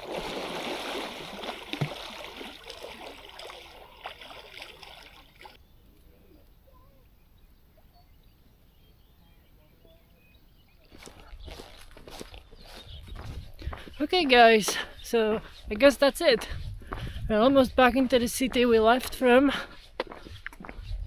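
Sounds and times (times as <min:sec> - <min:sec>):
water splashing and trickling: 0:00.0 - 0:05.6.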